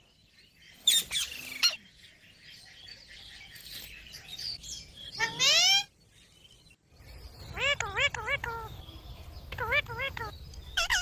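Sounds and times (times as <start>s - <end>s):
parrot screeching and chattering: 5.2s - 5.9s, 7.5s - 8.7s, 9.6s - 11.0s.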